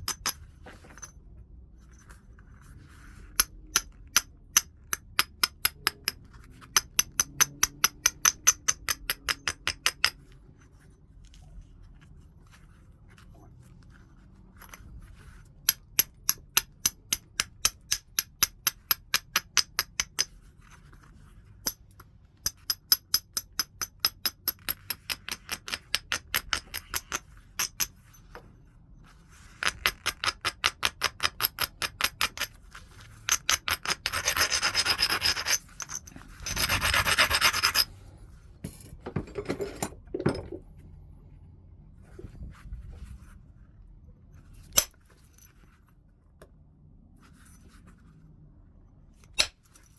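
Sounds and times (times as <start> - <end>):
knapping hammer tapping stone: 3.4 - 10.2, 21.7 - 27.9.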